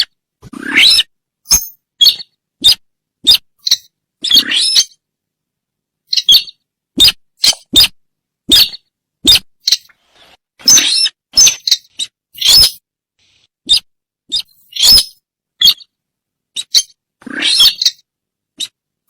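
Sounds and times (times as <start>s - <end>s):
squeaky bird lure calls: 10.7s - 12.8s, 13.7s - 15.8s.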